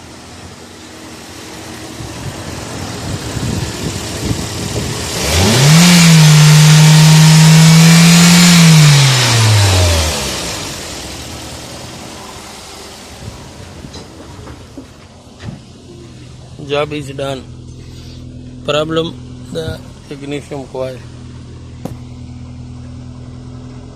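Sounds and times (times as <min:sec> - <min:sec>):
car engine revving: 0:00.8 - 0:14.6.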